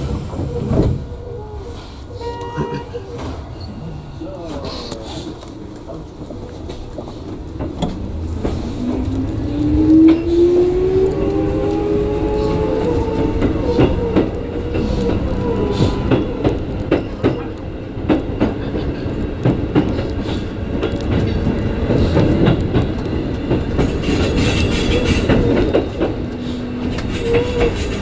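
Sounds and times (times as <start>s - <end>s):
train rumble: 0.0s - 28.0s
wheel clacks over rail joints: 12.5s - 28.0s.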